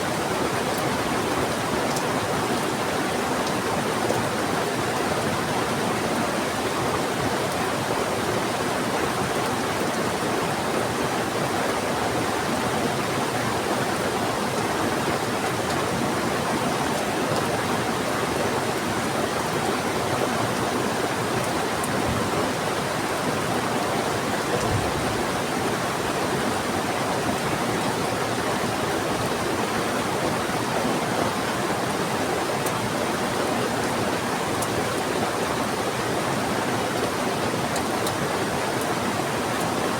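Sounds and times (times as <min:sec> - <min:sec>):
heavy rain: 0:00.0 - 0:39.9
fast-flowing river rushing: 0:25.2 - 0:39.9.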